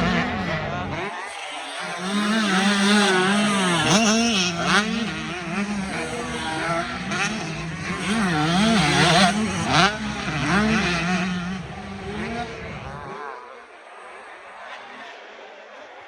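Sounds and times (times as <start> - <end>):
motocross engines revving: 0.0 - 13.6.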